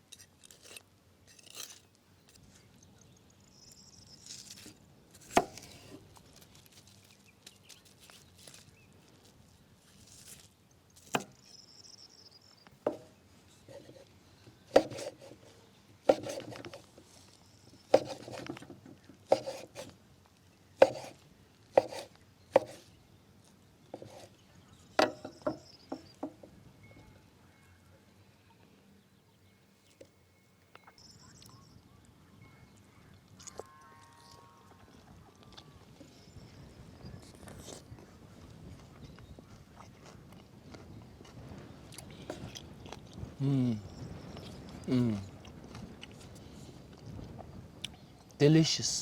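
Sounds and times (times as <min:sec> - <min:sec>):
knife chopping on wooden board: 0:14.7 - 0:15.3, 0:16.1 - 0:16.8, 0:17.9 - 0:18.7, 0:19.3 - 0:19.9, 0:20.8 - 0:21.2, 0:21.8 - 0:22.8.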